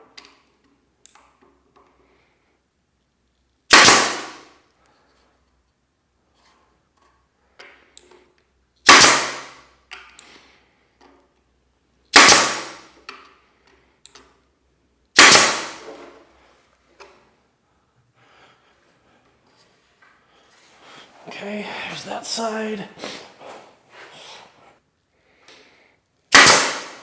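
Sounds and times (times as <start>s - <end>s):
nail gun firing: 3.7s - 4.6s, 8.8s - 9.6s, 12.1s - 12.9s, 15.2s - 16.0s, 26.3s - 27.0s.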